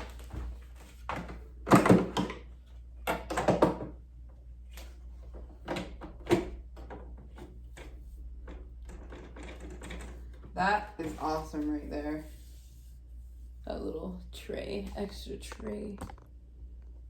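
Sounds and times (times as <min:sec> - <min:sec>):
hard objects knocking and clunking: 0:01.1 - 0:04.0.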